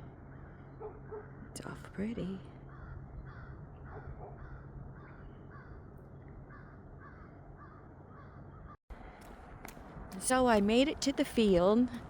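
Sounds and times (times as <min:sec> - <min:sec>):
gulls giving harsh alarm calls: 0:02.7 - 0:08.8.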